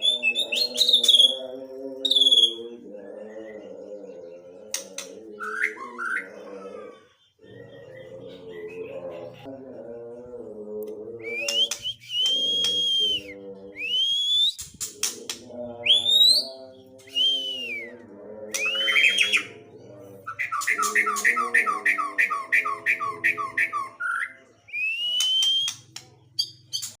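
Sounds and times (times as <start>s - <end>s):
lower steady bird call: 0.0s - 27.0s
bird singing whistled notes: 11.3s - 14.8s, 23.9s - 27.0s.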